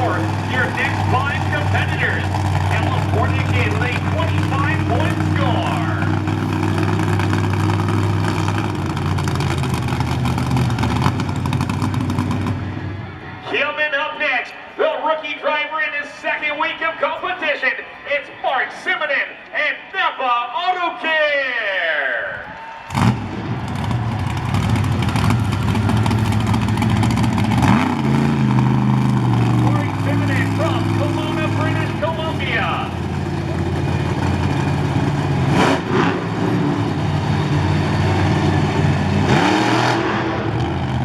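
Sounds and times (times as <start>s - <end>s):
monster truck engine running: 0.0s - 13.4s, 22.9s - 41.0s.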